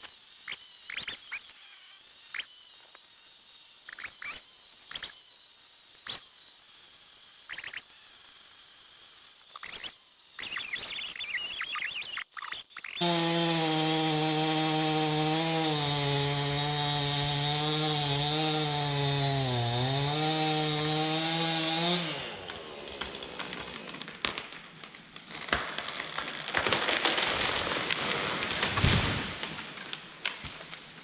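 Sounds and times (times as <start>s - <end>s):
chainsaw cutting: 0.0s - 31.0s.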